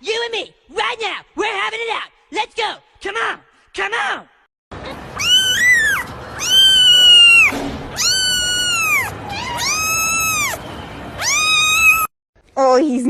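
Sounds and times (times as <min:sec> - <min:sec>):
cat yowling: 0:04.8 - 0:10.6, 0:11.2 - 0:12.1.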